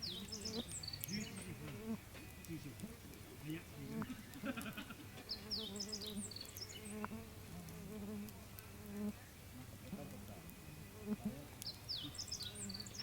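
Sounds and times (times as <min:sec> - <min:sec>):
insect buzzing: 0:00.0 - 0:02.4, 0:03.4 - 0:09.2, 0:10.5 - 0:13.0
bird chirping: 0:00.0 - 0:07.4, 0:10.4 - 0:13.0.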